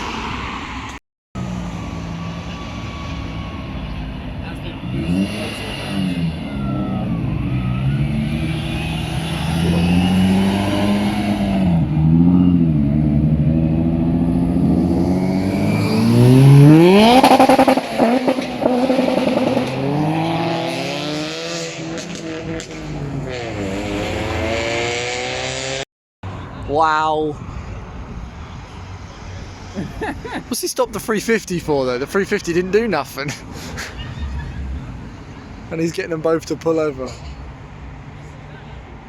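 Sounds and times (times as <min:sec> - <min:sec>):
car engines revving: 0:00.0 - 0:25.8, 0:31.6 - 0:39.0
car accelerating hard: 0:04.8 - 0:25.8.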